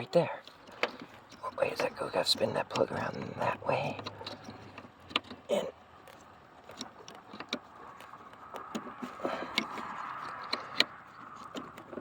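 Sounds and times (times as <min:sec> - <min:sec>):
plastic connectors clicking and rattling: 0:03.9 - 0:12.0.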